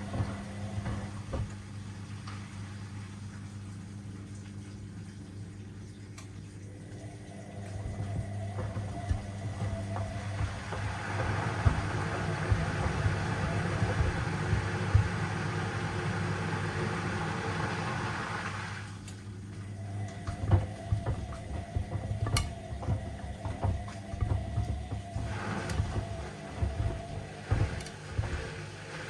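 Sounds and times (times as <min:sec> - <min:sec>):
sneakers knocking in drum: 0:00.0 - 0:01.6, 0:07.7 - 0:15.4, 0:20.1 - 0:28.7
washing machine motor hum: 0:00.0 - 0:29.0
water rushing: 0:19.8 - 0:29.0.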